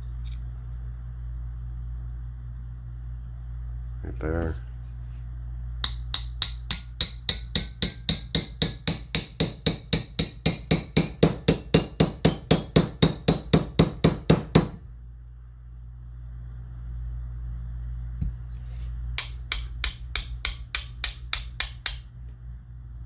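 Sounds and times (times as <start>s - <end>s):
small hammer tapping metal: 5.8s - 14.8s, 19.2s - 22.1s.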